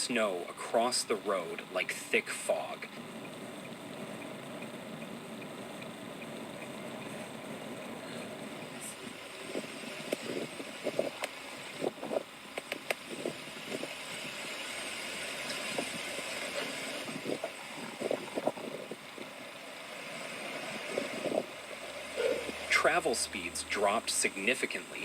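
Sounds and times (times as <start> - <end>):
vehicle hiss: 4.9 - 25.0.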